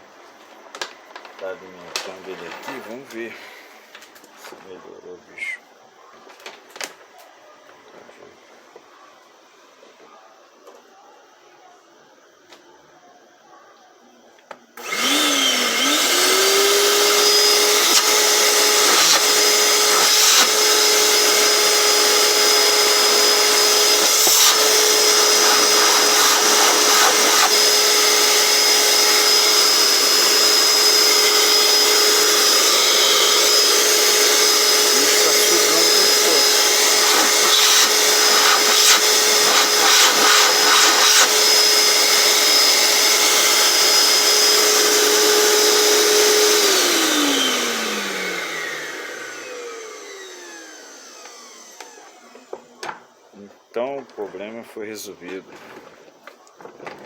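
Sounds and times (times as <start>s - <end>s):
vacuum cleaner motor whine: 0.0s - 3.6s, 14.8s - 53.5s.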